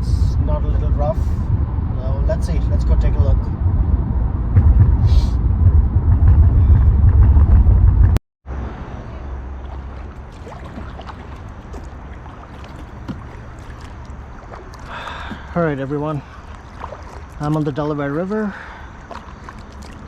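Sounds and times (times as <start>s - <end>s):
moving car rumble: 0.0s - 15.6s
river water hush: 9.4s - 20.0s.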